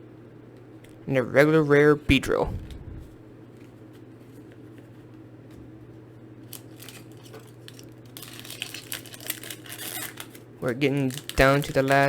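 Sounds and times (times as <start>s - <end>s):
low electrical hum: 0.0s - 12.0s
cards and foil pack crinkling: 6.4s - 12.0s.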